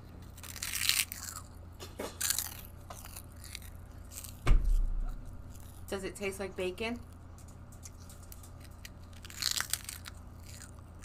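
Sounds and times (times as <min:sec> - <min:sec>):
child chewing crunchy chips: 0:00.0 - 0:06.0, 0:07.0 - 0:11.0
loud thump: 0:04.4 - 0:05.3.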